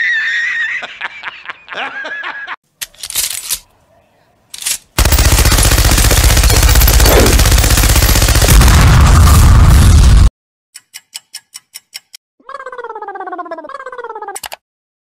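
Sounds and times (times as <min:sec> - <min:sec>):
man laughing: 0:00.0 - 0:02.6
machine gun firing burst: 0:05.0 - 0:09.4.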